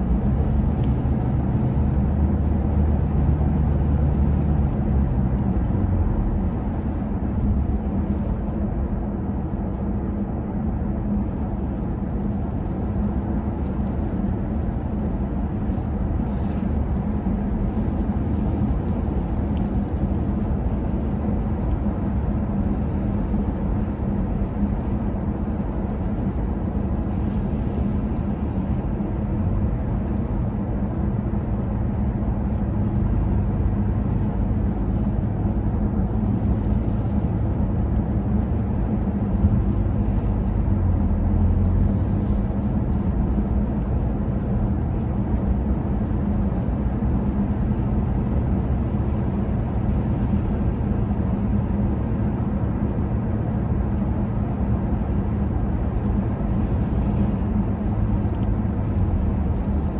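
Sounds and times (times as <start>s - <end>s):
vehicle rumble: 0.0s - 59.9s
deep hum: 27.1s - 45.4s.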